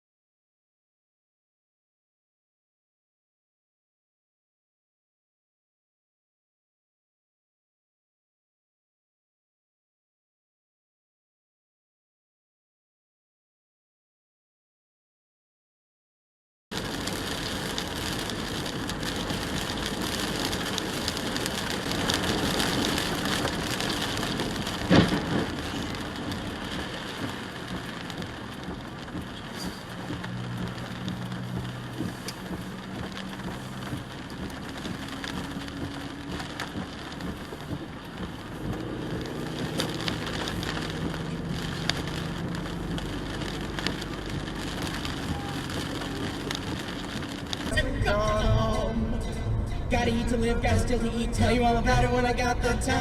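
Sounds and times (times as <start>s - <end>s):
car driving on wet road: 16.7s - 53.0s.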